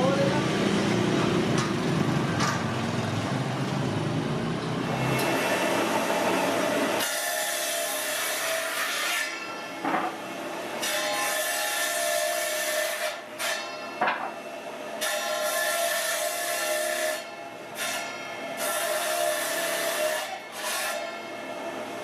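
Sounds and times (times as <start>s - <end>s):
saw cutting through wood: 4.8s - 22.0s.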